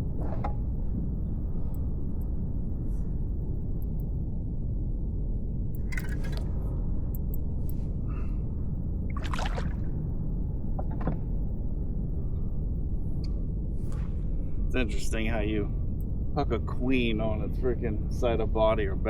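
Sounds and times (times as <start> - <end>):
wind on microphone: 8.9 - 15.8
water splashing and dripping: 9.1 - 9.9.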